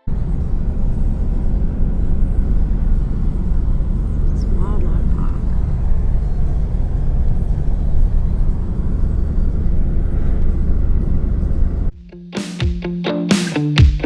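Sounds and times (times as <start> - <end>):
vehicle rumbling on road: 0.1 - 11.9
plucked guitar music: 12.0 - 14.0.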